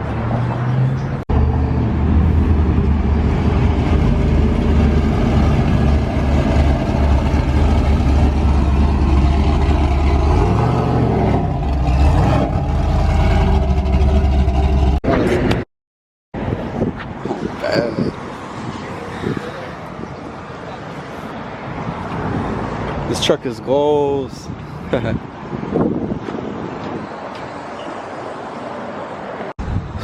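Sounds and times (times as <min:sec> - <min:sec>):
vehicle engine rumbling: 0:00.0 - 0:15.6.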